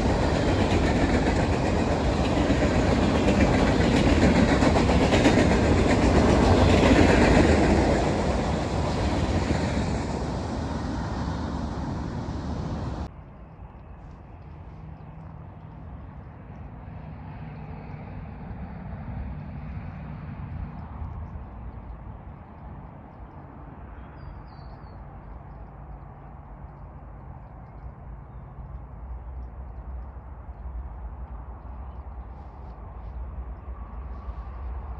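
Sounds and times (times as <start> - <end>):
train passing: 0.0 - 13.1, 25.1 - 34.9
low rumble: 0.0 - 13.3.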